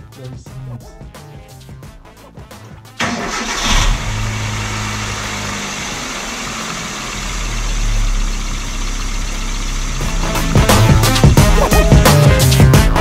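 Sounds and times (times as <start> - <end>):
car engine idling: 3.0 - 12.5.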